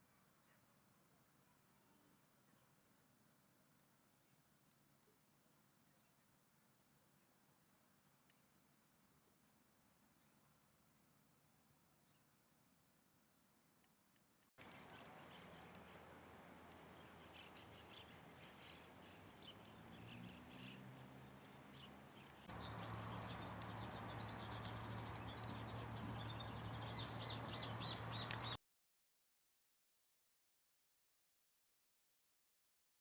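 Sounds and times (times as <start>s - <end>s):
small birds chirping: 14.6s - 28.6s.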